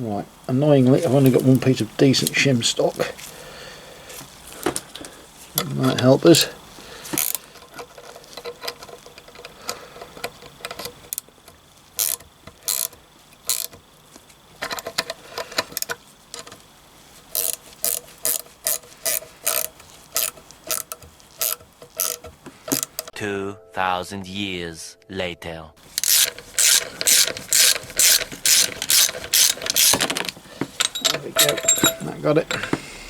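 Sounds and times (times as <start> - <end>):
metallic clicks of hand tools: 4.6 - 16.6, 17.3 - 23.1, 25.8 - 32.9.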